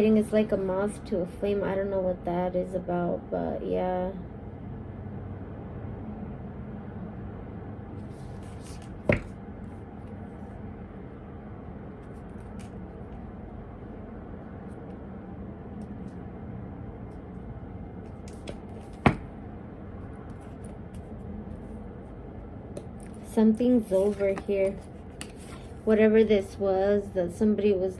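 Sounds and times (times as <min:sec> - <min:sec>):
low hum of room noise: 0:00.0 - 0:27.9.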